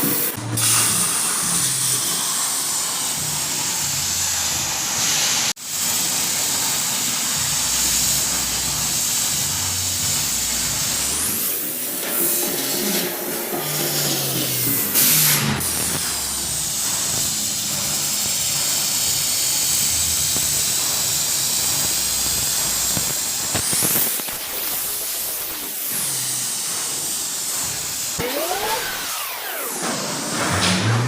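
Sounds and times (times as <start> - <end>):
loud steady hissing: 0.0 - 30.3
swooping sounds: 28.2 - 30.2.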